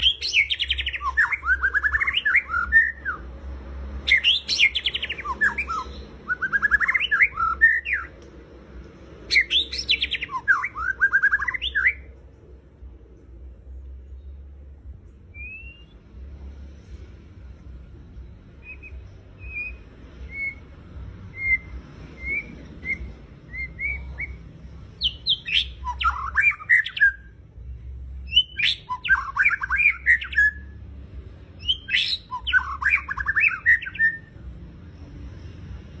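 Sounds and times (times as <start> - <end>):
bird song phrases: 0.0 - 3.2, 4.0 - 8.2, 9.2 - 12.4, 18.6 - 27.4, 28.2 - 30.7, 31.6 - 35.4.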